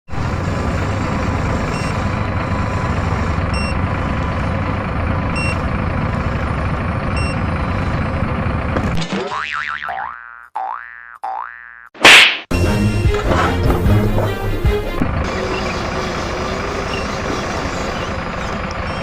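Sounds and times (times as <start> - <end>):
truck engine rumbling: 0.1 - 10.4, 12.5 - 19.0
reversing alarm beeps: 3.5 - 4.4, 5.4 - 5.6, 7.2 - 7.4.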